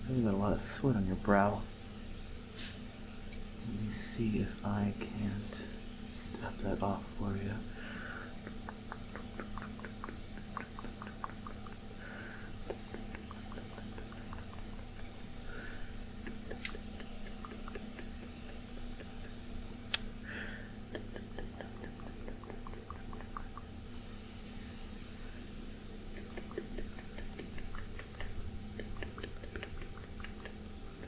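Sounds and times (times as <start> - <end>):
air conditioner hum: 0.0 - 31.0
sharp clicks: 16.5 - 17.1.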